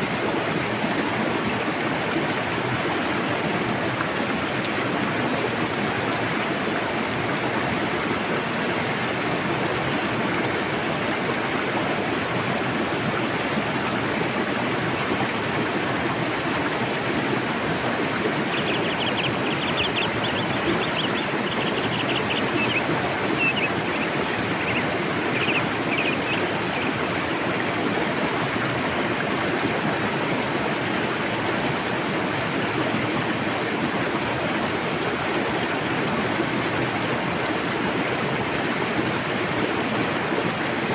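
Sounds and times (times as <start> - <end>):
river rushing: 0.3 - 32.9.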